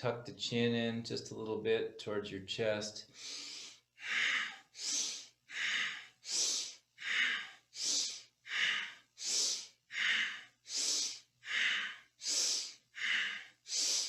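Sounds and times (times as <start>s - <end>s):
forceful rhythmic breathing: 3.1s - 14.0s.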